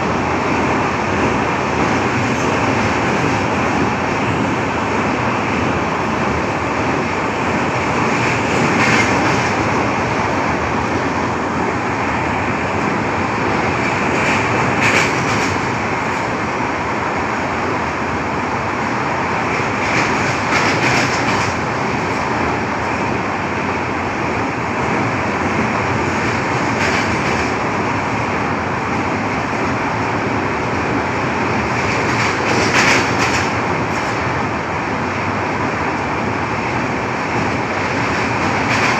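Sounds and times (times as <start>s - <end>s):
vehicle clatter: 14.1s - 15.8s, 19.5s - 22.1s, 26.0s - 27.6s, 31.7s - 34.2s, 37.3s - 38.9s.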